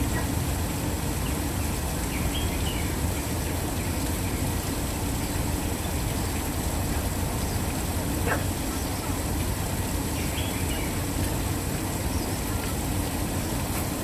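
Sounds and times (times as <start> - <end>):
waterfall rushing: 0.0 - 14.0
bird chirp: 2.1 - 4.4, 10.1 - 11.0.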